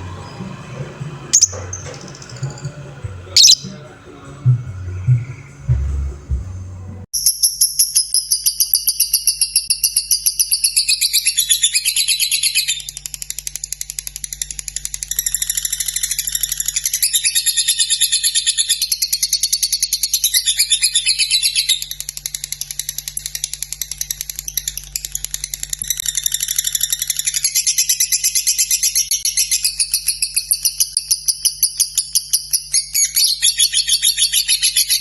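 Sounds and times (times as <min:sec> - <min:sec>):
lovebird chattering: 0:01.3 - 0:02.6, 0:03.4 - 0:03.8.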